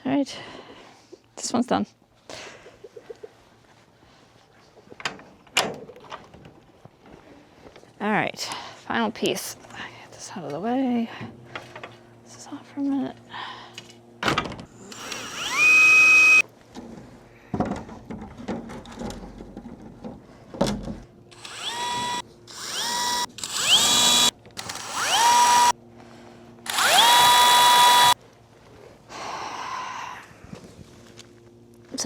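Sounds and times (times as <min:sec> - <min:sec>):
power drill whining: 0:14.8 - 0:16.4, 0:21.3 - 0:25.7, 0:26.7 - 0:28.2.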